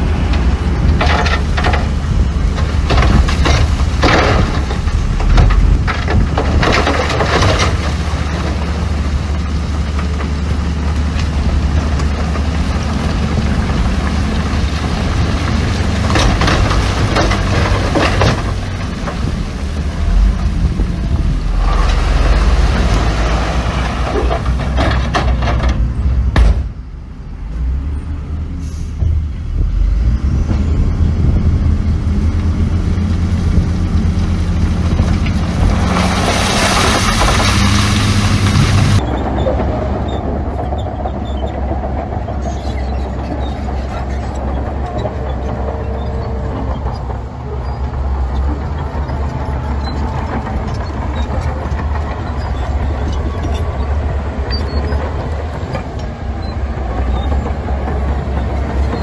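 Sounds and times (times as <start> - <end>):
heavy diesel machinery engines: 0.0 - 59.0.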